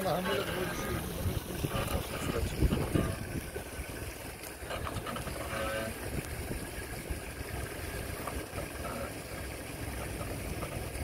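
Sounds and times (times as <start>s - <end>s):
car engine idling: 0.0s - 11.0s
wind buffeting microphone: 0.5s - 5.1s, 5.9s - 8.8s.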